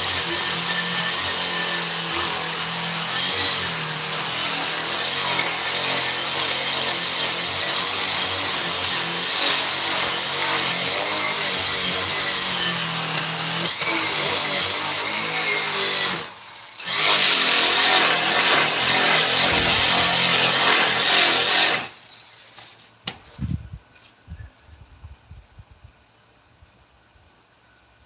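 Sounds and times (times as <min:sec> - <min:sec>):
power tool working wood: 0:00.0 - 0:22.3.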